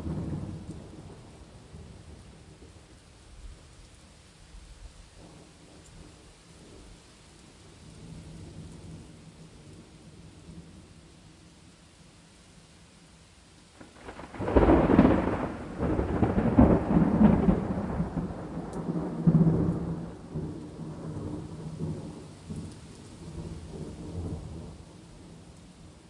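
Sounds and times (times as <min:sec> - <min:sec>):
thunder rumbling: 0:00.0 - 0:02.9, 0:13.8 - 0:26.0
steady rain: 0:00.0 - 0:26.0.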